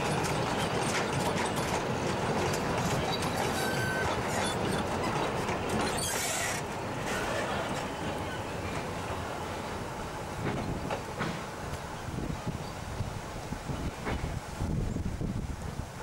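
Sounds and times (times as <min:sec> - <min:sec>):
train wheels clicking over rail joints: 0:00.0 - 0:14.6
wheel squeal: 0:02.5 - 0:08.5.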